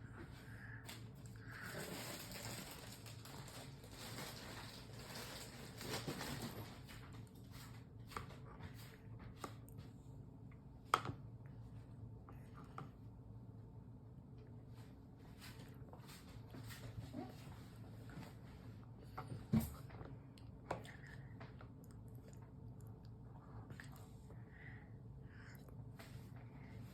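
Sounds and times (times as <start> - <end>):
low room hum: 0.0 - 26.9
soft rustling handling sounds: 0.2 - 10.1.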